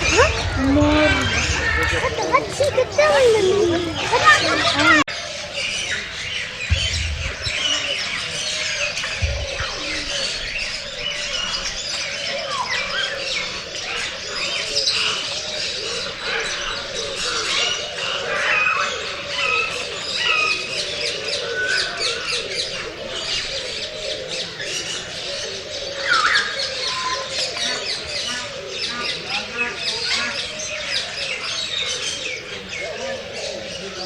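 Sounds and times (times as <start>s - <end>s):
loud rising bird call: 0.0s - 5.1s
birds chirping and squawking: 0.0s - 34.0s.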